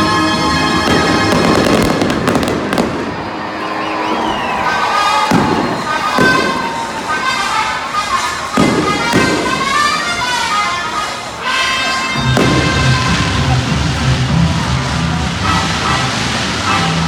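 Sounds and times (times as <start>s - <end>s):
music over stadium pa: 0.0s - 17.0s
firework bursts booming: 0.8s - 3.6s, 5.2s - 7.2s, 8.6s - 10.3s, 12.2s - 17.0s.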